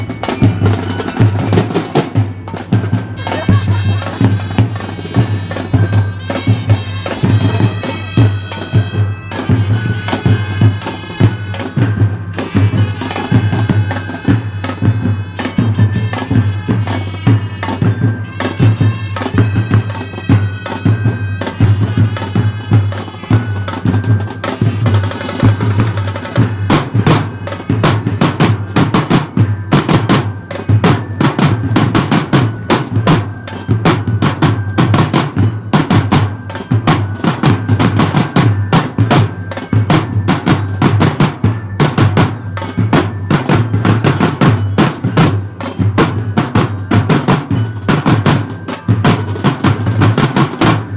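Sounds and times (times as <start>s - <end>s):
marching drums: 0.0s - 50.9s
brass and bugle melody: 3.0s - 29.2s.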